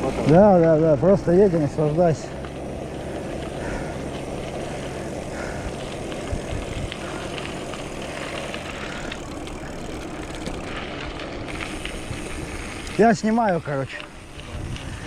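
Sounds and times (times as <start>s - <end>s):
bike tyres rolling on dirt: 0.0s - 15.0s
wind buffeting microphone: 3.0s - 10.8s, 14.2s - 15.0s.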